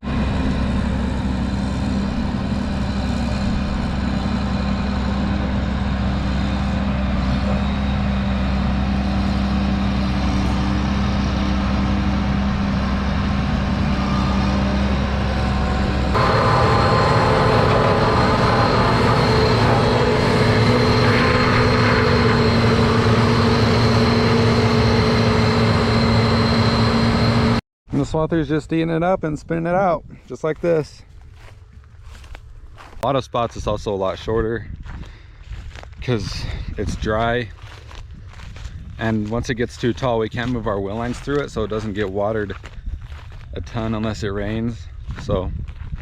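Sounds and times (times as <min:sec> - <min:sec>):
swather engine running: 0:00.0 - 0:27.6.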